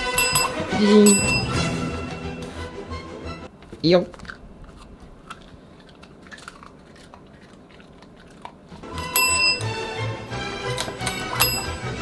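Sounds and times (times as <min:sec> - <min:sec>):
faint chewing: 0:03.6 - 0:09.9.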